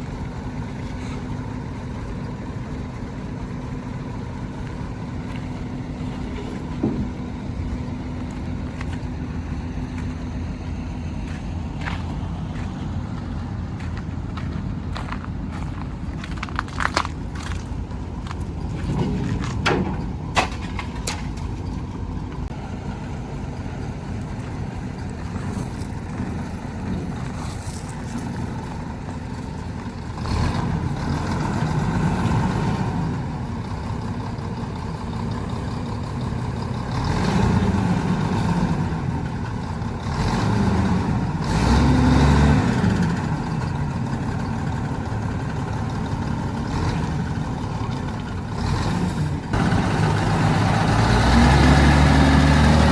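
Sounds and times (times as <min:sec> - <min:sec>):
heavy diesel engine revving: 0:21.8 - 0:52.9.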